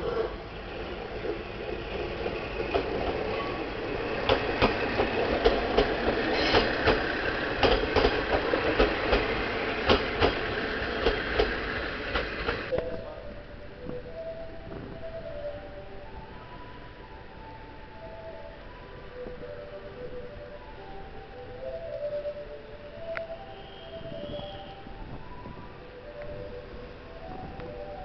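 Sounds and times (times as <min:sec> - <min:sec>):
diesel railcar rumble: 0:00.0 - 0:28.0
wheel clacks over rail joints: 0:02.2 - 0:12.8.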